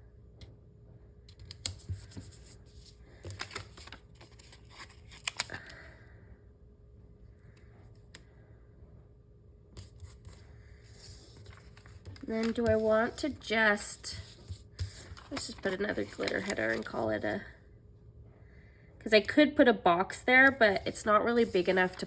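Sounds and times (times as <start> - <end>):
paper stickers and pages handled: 1.3 - 5.8, 9.8 - 17.4, 20.1 - 22.0.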